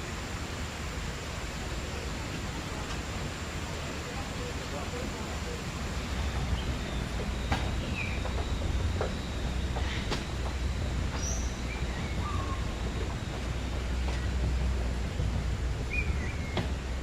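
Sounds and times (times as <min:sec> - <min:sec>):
low background rumble: 0:04.4 - 0:17.0
birds chirping: 0:06.0 - 0:14.8.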